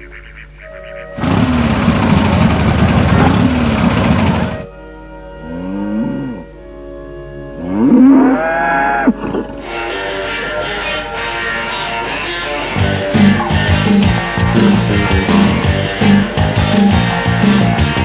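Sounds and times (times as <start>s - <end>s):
motorcycle engines revving: 1.2s - 4.7s
background music: 4.6s - 18.0s.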